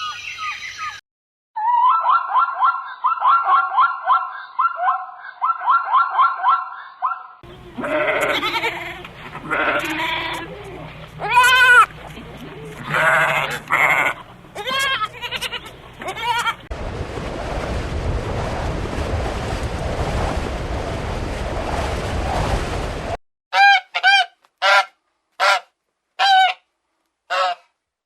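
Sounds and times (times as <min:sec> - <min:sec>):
steady noisy background: 0:07.4 - 0:16.6
geese honking: 0:07.5 - 0:16.7, 0:23.6 - 0:26.6, 0:27.3 - 0:27.6.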